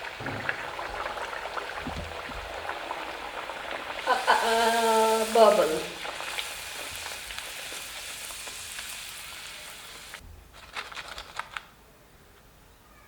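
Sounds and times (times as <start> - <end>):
dough sizzling in hot oil: 0.0 - 10.2.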